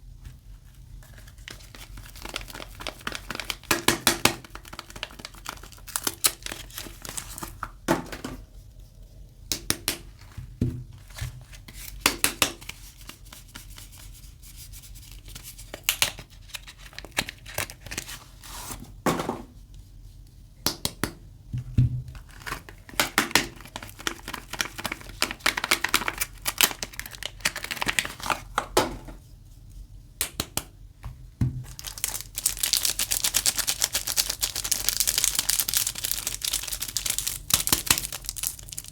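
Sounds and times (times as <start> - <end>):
wrapping crinkling and tearing: 1.0 - 7.7, 14.9 - 18.3, 22.1 - 28.6, 31.6 - 38.9.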